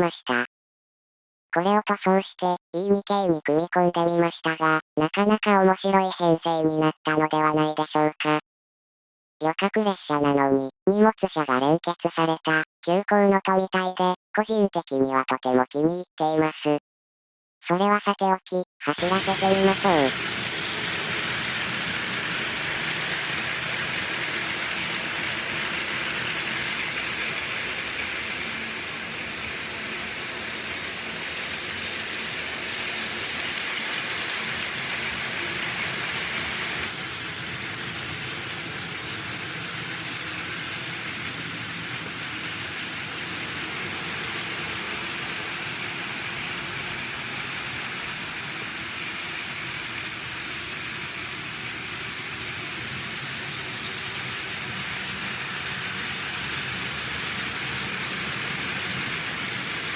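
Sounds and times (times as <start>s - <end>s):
toy train whirring rattle: 19.0s - 59.9s.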